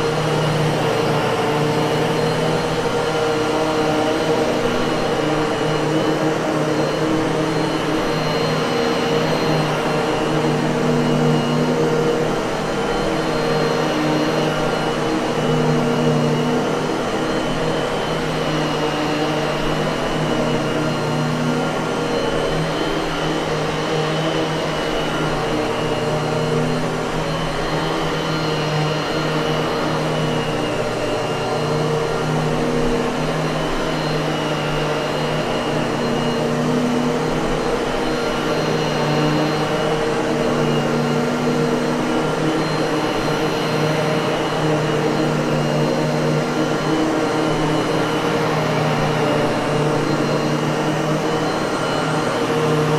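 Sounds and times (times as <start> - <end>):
vacuum cleaner motor running: 0.0 - 52.9.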